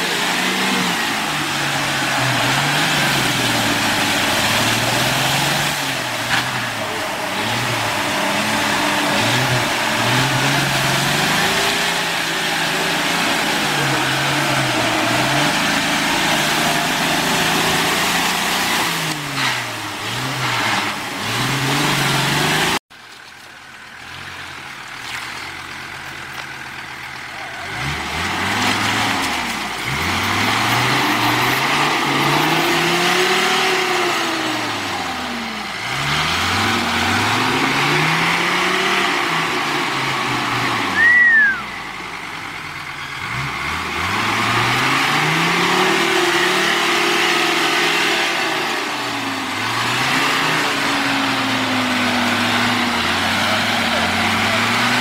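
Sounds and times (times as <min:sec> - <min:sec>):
engine revving: 0:00.0 - 0:22.8, 0:24.0 - 0:55.0
high falling squeal: 0:40.9 - 0:41.8.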